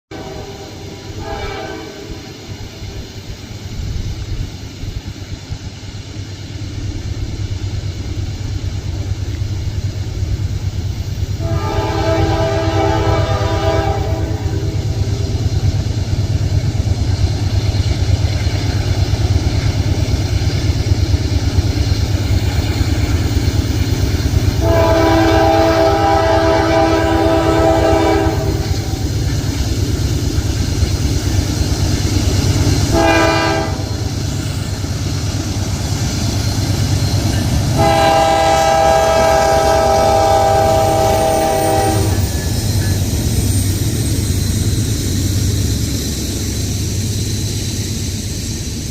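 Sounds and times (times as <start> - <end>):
diesel freight train rumbling: 0.0 - 48.9
locomotive air horn blasts: 0.1 - 2.4, 11.4 - 15.1, 24.6 - 29.0, 32.9 - 34.1, 37.7 - 42.2.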